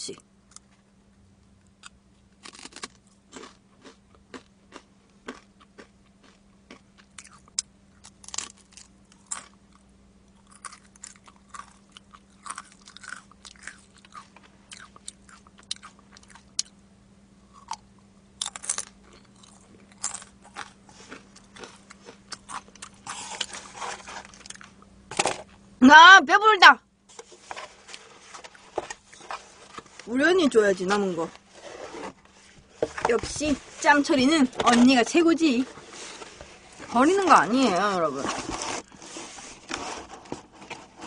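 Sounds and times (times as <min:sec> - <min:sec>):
chewing crunchy fried chicken: 0:01.7 - 0:16.8, 0:17.4 - 0:24.9.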